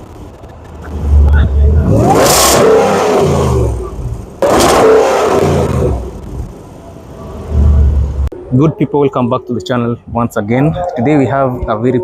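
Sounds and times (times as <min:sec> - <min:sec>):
car engine revving: 0:00.6 - 0:08.4.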